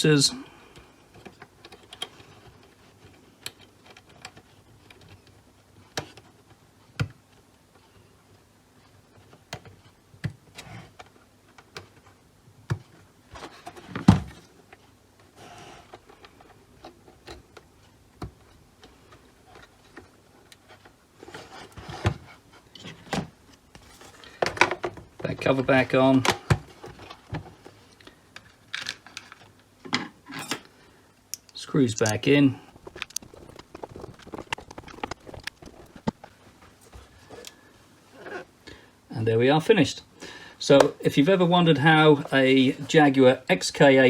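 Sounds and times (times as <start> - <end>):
plastic parts clicking and knocking: 24.2 - 25.4, 31.3 - 36.4
rustling handling: 31.6 - 38.5.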